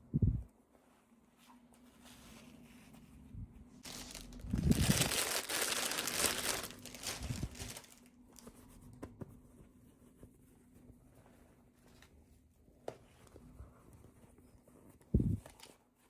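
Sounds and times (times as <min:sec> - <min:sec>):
packaging crinkling and rustling: 0:03.8 - 0:08.5.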